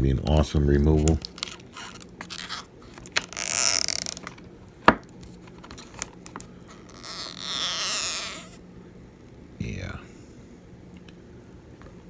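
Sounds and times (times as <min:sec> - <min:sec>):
adhesive strip peeling rasp: 0:01.0 - 0:04.3, 0:05.8 - 0:08.6.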